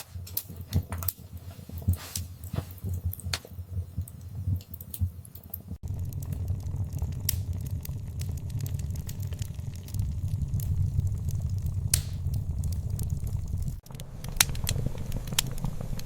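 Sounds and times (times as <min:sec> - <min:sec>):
wood fire crackling: 0:00.0 - 0:16.0
low rumble: 0:05.7 - 0:16.0.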